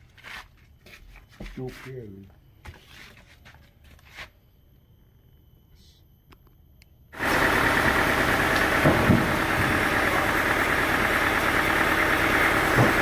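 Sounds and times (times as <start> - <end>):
sawmill machinery droning: 7.2 - 13.0.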